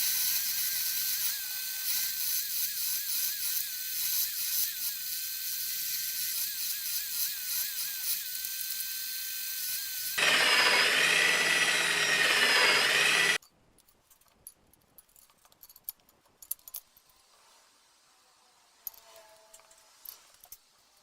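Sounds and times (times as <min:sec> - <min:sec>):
power tool whining: 0:00.1 - 0:13.4.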